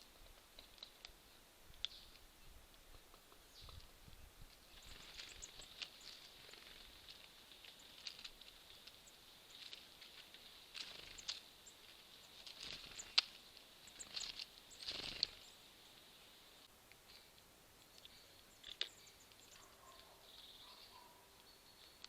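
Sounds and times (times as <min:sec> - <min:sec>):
birds pecking at feeder: 0:01.8 - 0:15.6.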